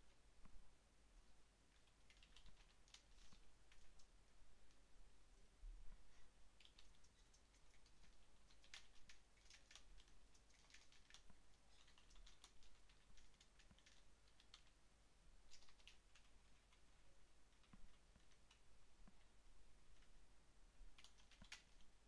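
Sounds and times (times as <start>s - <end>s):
keyboard keys clicking: 6.6s - 14.7s.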